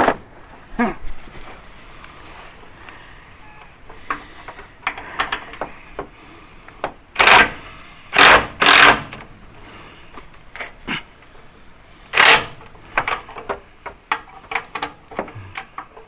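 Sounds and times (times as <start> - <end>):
rapid mechanical tool rattling: 7.2 - 9.3, 12.1 - 16.0.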